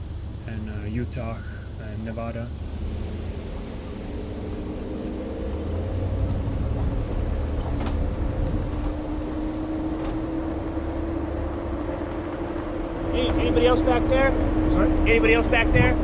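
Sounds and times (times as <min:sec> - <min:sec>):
pickup engine hum: 0:00.0 - 0:16.0
tyre and road rumble: 0:00.0 - 0:16.0.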